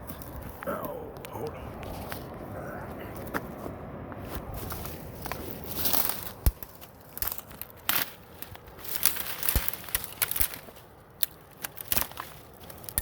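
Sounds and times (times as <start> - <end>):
footsteps crunching through dry brush: 0.0 - 13.0
twigs snapping: 4.2 - 13.0.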